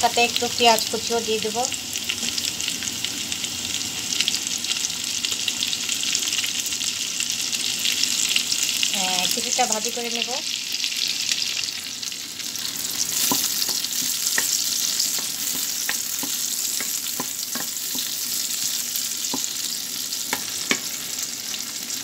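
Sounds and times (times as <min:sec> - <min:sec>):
onion and garlic sizzling in oil: 0:00.0 - 0:22.0
wooden spoon tapping pan: 0:13.2 - 0:18.2.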